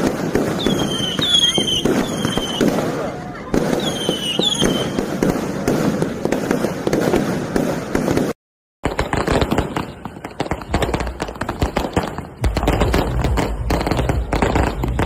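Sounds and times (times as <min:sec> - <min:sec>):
fireworks crackling: 0:00.0 - 0:15.0
deep firework thumps: 0:05.0 - 0:15.0.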